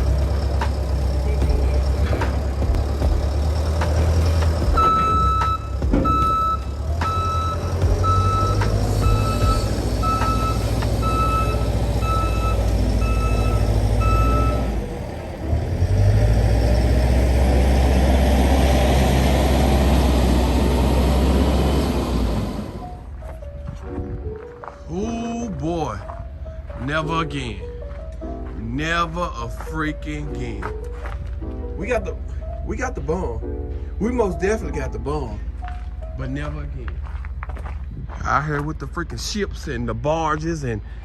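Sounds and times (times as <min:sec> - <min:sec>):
diesel engine rumbling: 0:00.0 - 0:41.0
reversing alarm beeping: 0:04.7 - 0:14.8.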